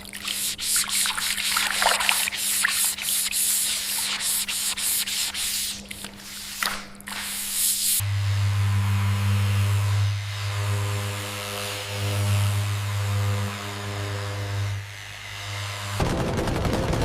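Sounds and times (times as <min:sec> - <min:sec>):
rasping strokes on a surface: 0:00.2 - 0:16.0
loud electric buzz: 0:08.0 - 0:17.0.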